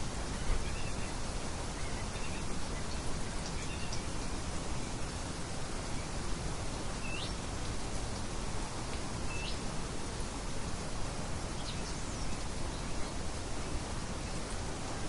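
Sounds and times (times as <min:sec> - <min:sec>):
light wind hissing: 0:00.0 - 0:15.0.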